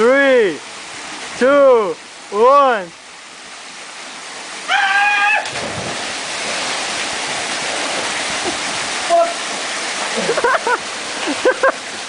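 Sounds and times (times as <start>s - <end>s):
waterfall rushing: 0.0s - 12.0s
person yelling: 4.7s - 5.5s, 9.1s - 9.4s
splash into water: 5.0s - 9.6s.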